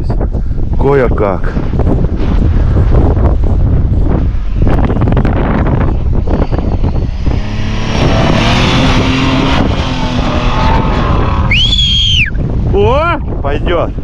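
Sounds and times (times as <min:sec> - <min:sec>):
wind buffeting microphone: 0:00.0 - 0:14.0
off-road vehicle engine running: 0:01.9 - 0:13.1.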